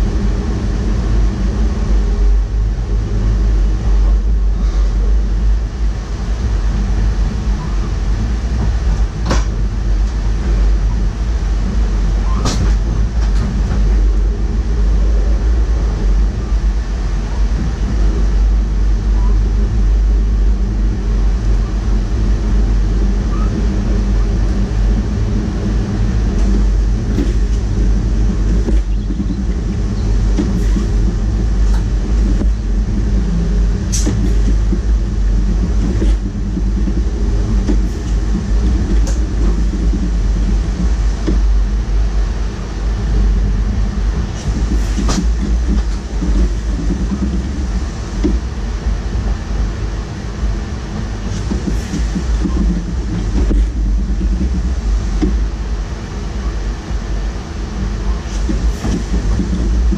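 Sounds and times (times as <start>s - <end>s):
train rumble and hum: 0.0s - 59.9s
sharp clicks and knocks: 8.6s - 10.6s, 28.4s - 32.6s, 33.9s - 41.6s, 51.0s - 55.5s.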